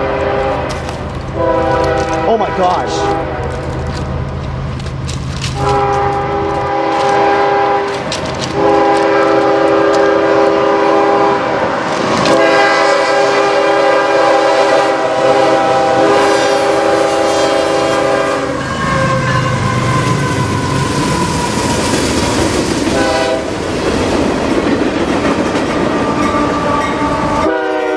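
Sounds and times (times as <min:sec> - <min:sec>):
locomotive air horn: 0:00.0 - 0:03.8, 0:05.6 - 0:11.6, 0:12.3 - 0:21.6, 0:22.9 - 0:23.5, 0:26.0 - 0:27.9
train rumble: 0:00.0 - 0:27.9.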